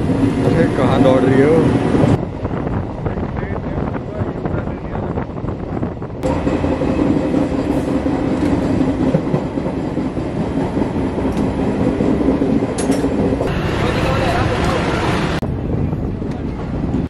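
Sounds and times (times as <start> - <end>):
train wheels on rails: 5.4 - 17.0.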